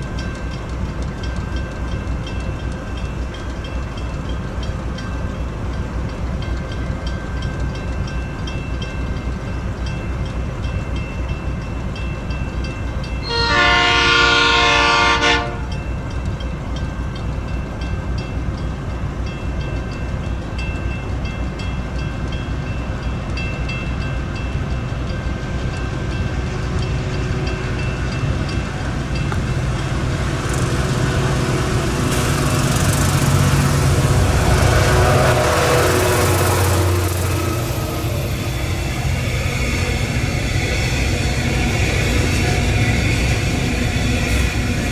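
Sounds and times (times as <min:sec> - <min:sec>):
freight train wheels clacking: 0:00.0 - 0:44.9
train horn blast: 0:13.2 - 0:15.8, 0:33.3 - 0:39.0
diesel engine: 0:26.3 - 0:44.9.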